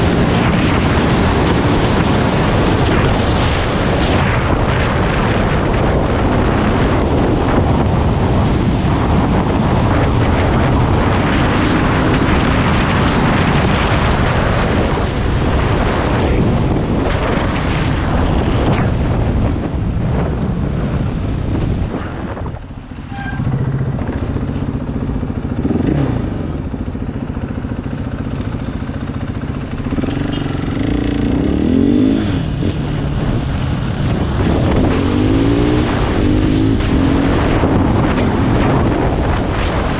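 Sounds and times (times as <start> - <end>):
wind noise on microphone: 0.0 - 39.9
dirt bike engine revving: 23.1 - 26.6, 27.8 - 32.8.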